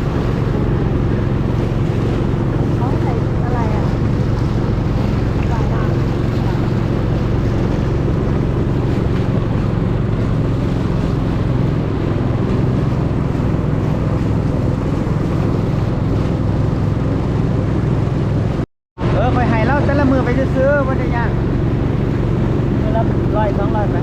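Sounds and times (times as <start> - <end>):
boat engine running: 0.0 - 24.0
wind buffeting microphone: 0.0 - 24.0.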